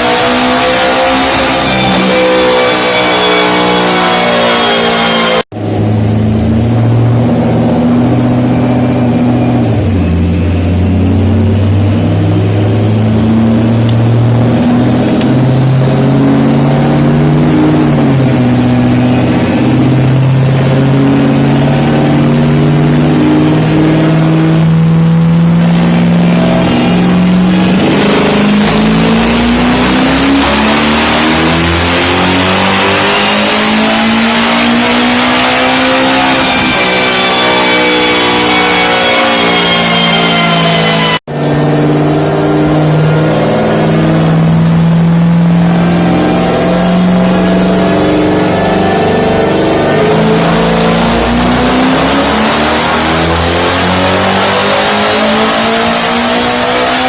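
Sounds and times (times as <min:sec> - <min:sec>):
car engine under load: 0:00.0 - 0:57.0
high turbo whistle: 0:25.8 - 0:49.2.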